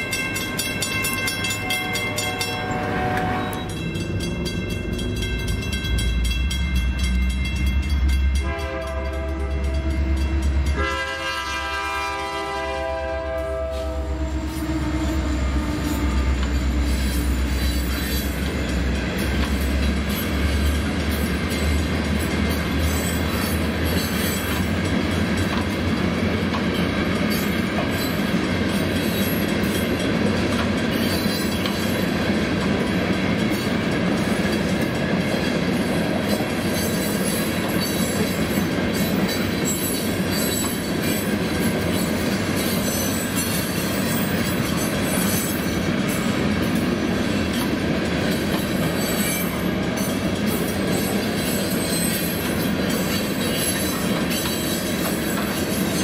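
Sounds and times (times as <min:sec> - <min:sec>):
train wheels rumbling and clattering: 0:00.0 - 0:56.0
locomotive air horn: 0:01.3 - 0:03.7, 0:08.3 - 0:16.8.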